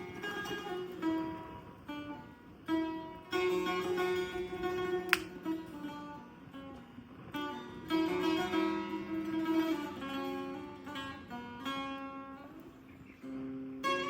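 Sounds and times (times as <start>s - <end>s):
plucked lute melody: 0.0s - 6.2s, 7.4s - 12.6s
campfire crackle: 5.1s - 5.4s.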